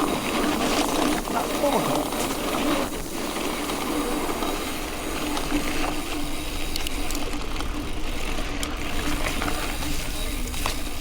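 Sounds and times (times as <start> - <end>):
bike tyres on gravel: 0.0 - 11.0
light clicks from bike: 2.1 - 11.0.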